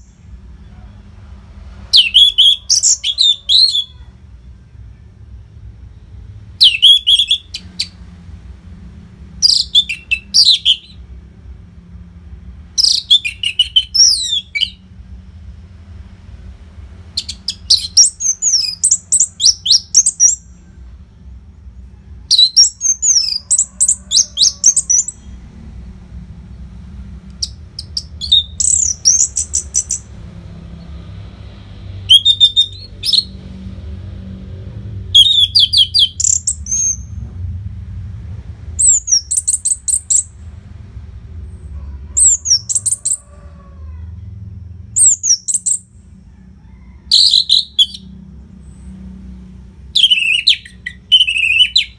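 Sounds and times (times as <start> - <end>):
thrush singing: 27.3 - 33.4.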